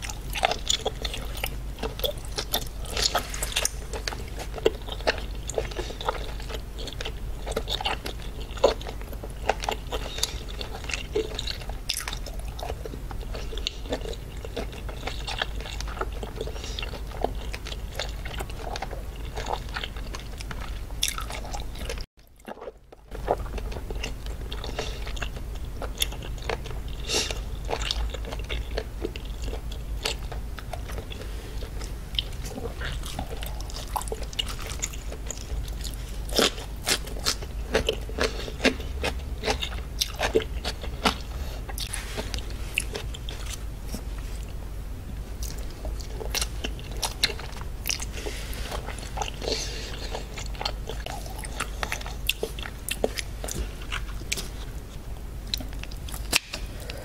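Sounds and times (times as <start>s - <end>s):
chewing seafood: 0.0s - 57.0s
low steady hum: 0.0s - 57.0s
wet mouth clicks and crunches: 55.5s - 56.7s.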